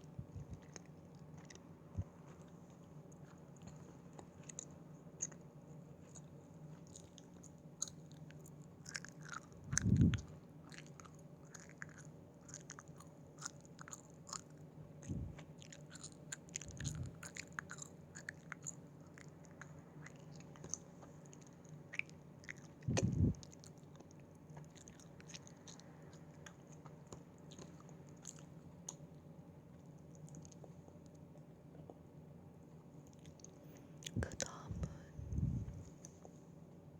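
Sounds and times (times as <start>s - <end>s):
chewing gummy candy: 0.0s - 36.4s
dull low thumps: 22.9s - 23.4s, 34.2s - 35.9s.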